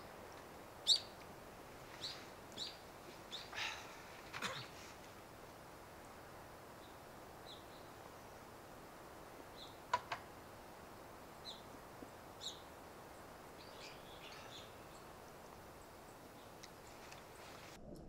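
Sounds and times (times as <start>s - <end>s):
forest ambience hiss: 0.0s - 17.8s
high bird chirps: 0.8s - 1.2s.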